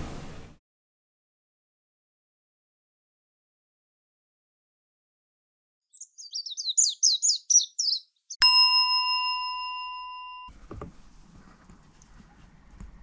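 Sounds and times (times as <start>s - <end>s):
outdoor background noise: 0.0s - 0.6s
high bird chirps: 5.9s - 8.5s
bell-like chime ringing: 8.4s - 10.5s.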